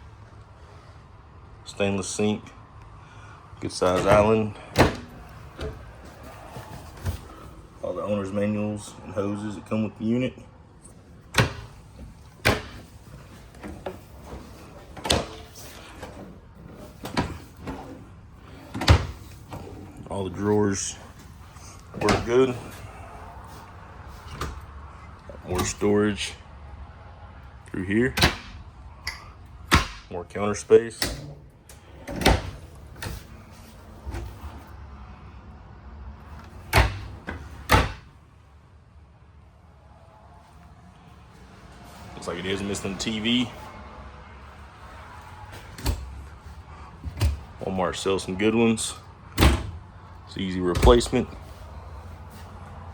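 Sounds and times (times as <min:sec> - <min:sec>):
cabinet doors and drawers knocking shut: 0:03.9 - 0:06.0, 0:11.3 - 0:11.8, 0:12.4 - 0:12.9, 0:13.6 - 0:18.0, 0:18.7 - 0:19.7, 0:22.0 - 0:22.4, 0:29.7 - 0:30.1, 0:32.1 - 0:33.3, 0:36.7 - 0:38.1
cabinet clicks: 0:12.4 - 0:12.9.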